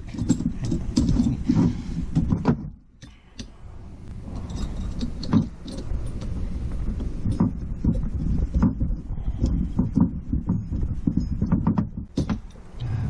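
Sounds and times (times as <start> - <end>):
metal clinks and handling: 0.0 - 2.4, 3.0 - 8.9.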